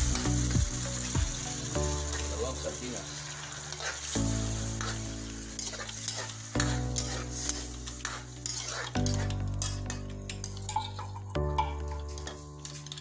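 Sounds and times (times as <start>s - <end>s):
background music: 0.0s - 13.0s
tomatoes sizzling in a wok: 0.0s - 13.0s
metal spatula scraping a pan: 3.2s - 13.0s.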